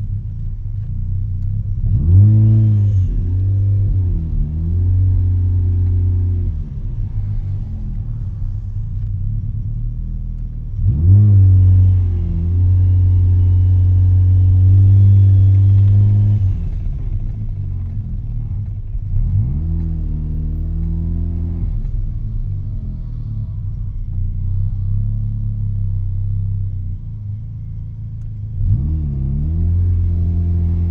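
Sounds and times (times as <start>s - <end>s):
rotary engine revving: 1.7s - 9.1s, 10.7s - 23.4s.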